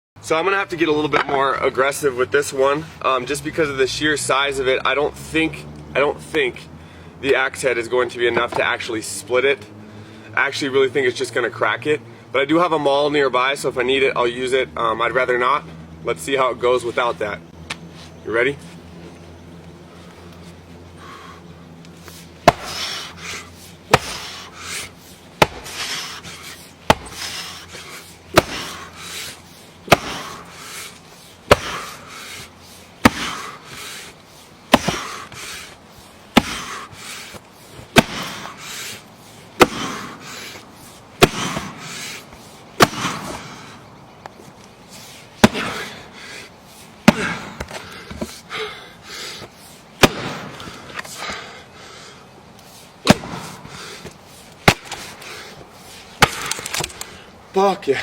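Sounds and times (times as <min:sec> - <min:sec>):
axe chopping log: 0:22.4 - 0:34.1, 0:34.7 - 0:39.0, 0:39.6 - 0:42.2, 0:42.8 - 0:43.7, 0:45.4 - 0:46.1, 0:47.0 - 0:48.4, 0:49.4 - 0:51.1, 0:53.0 - 0:55.4, 0:56.2 - 0:57.0.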